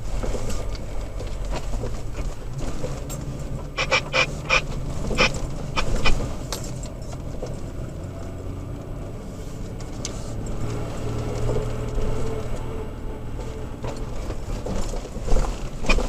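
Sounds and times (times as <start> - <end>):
rattles and knocks: 0.0 - 8.4, 13.4 - 16.0
engine droning: 0.0 - 16.0.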